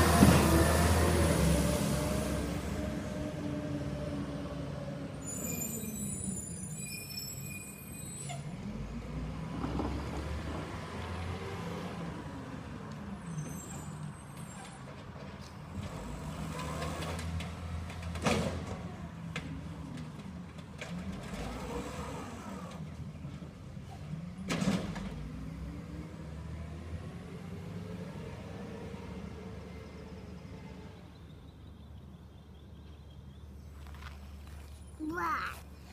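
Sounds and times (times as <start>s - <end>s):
garbage truck diesel engine: 0.0s - 31.0s.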